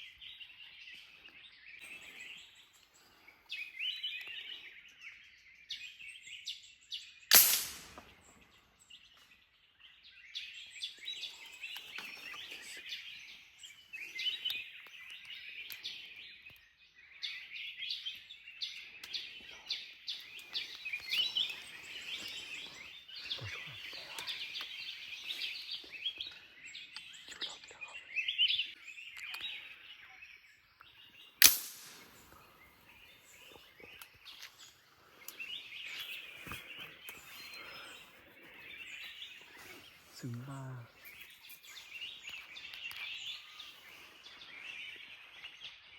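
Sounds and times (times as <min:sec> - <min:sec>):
birds chirping chorus: 0:00.0 - 0:45.9
sharp cracks: 0:07.3 - 0:08.2, 0:31.4 - 0:32.4.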